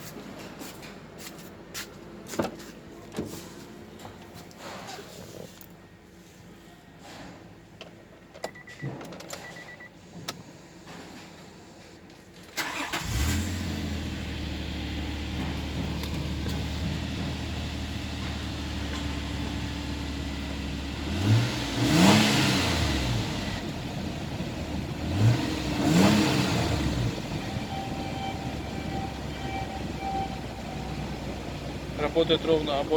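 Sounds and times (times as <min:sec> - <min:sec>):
car engine starting and idling: 0:12.4 - 0:32.9
engine revving: 0:12.6 - 0:32.9
short beeps: 0:27.4 - 0:31.1.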